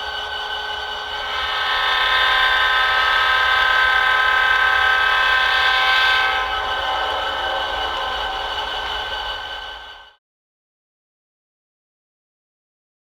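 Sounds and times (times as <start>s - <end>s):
train horn chord: 0.0s - 10.1s.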